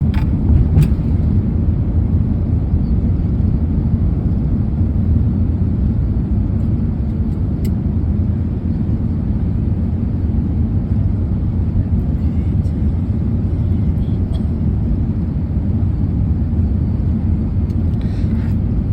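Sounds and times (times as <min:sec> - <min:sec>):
vehicle rumble: 0:00.0 - 0:18.9.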